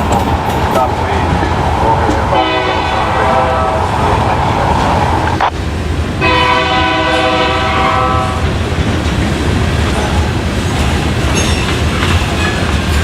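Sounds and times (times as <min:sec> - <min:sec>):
train rumbling on rails: 0:00.0 - 0:13.0
locomotive air horn blast: 0:02.3 - 0:04.0, 0:06.2 - 0:08.4.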